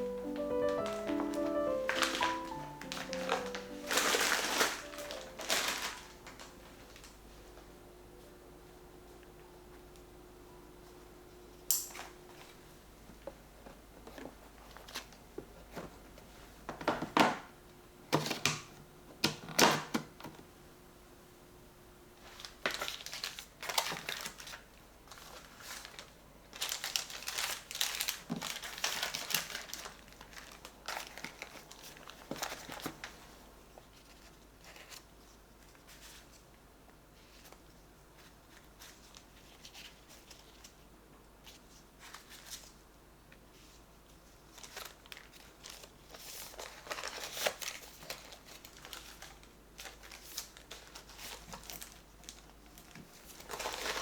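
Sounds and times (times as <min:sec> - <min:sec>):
plastic bags crinkling: 0:00.0 - 0:07.2, 0:22.2 - 0:33.1, 0:44.5 - 0:54.0.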